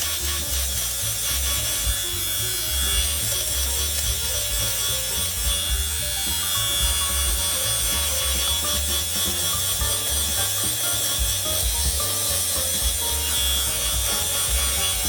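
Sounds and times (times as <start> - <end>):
background music: 0.0 - 15.0
electric fabric shaver buzzing: 0.0 - 15.0.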